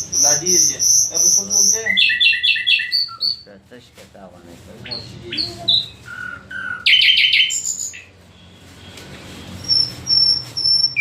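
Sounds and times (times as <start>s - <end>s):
songbird singing whistled phrases: 0.0s - 3.5s, 4.9s - 8.1s, 9.6s - 11.0s.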